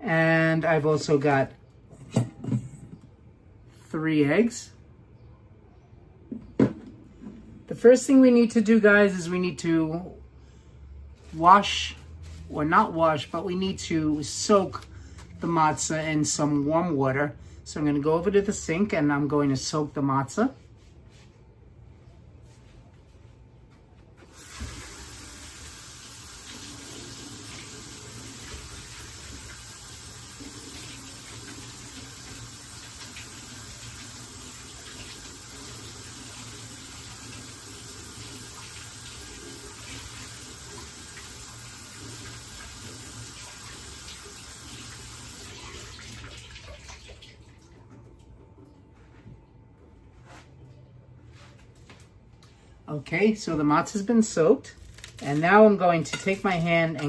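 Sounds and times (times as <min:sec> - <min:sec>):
kitchen tap running: 0:24.3 - 0:47.7.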